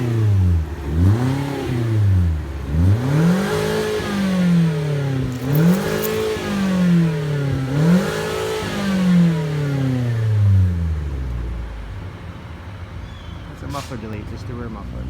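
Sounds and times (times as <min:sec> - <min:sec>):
car engine revving: 0:00.0 - 0:10.3.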